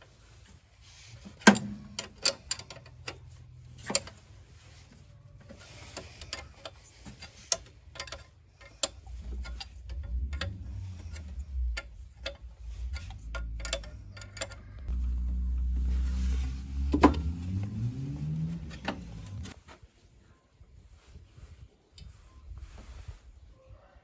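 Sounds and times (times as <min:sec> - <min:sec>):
sharp clicks and knocks: 0:05.9 - 0:15.8, 0:16.6 - 0:19.6.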